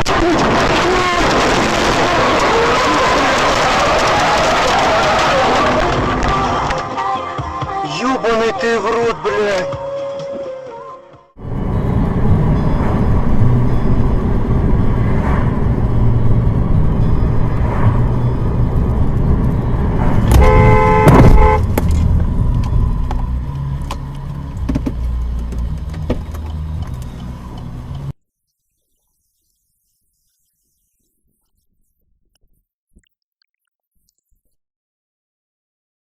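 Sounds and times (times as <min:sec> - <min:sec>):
car engine and road rumble: 0:11.4 - 0:28.2
car horn: 0:20.2 - 0:21.8.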